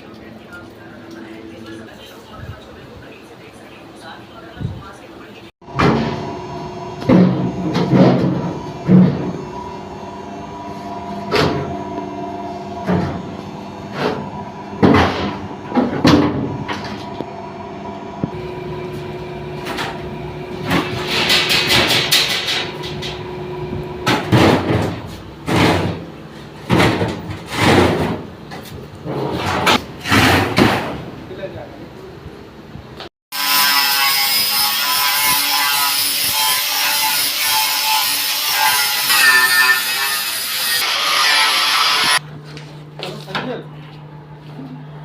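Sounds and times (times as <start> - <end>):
knocks and clatters of machine parts: 20.6 - 23.2, 24.0 - 31.1.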